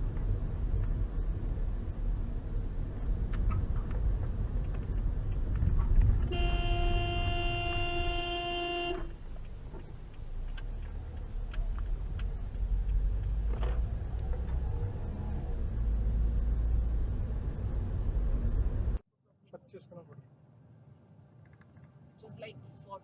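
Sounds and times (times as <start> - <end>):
road and engine rumble: 0.0 - 19.1
car horn blast: 6.2 - 9.2.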